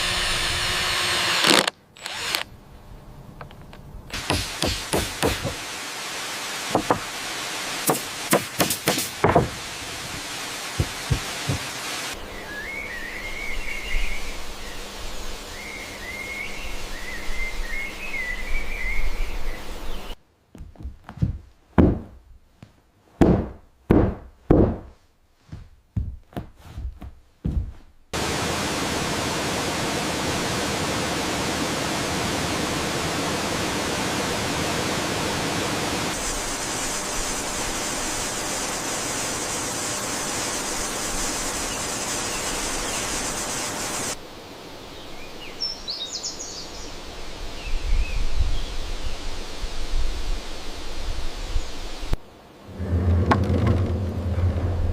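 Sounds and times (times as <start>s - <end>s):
construction knocks and taps: 8.6s - 9.6s, 10.8s - 11.7s, 20.6s - 22.1s
waterfall rushing: 9.1s - 12.2s, 28.2s - 44.2s.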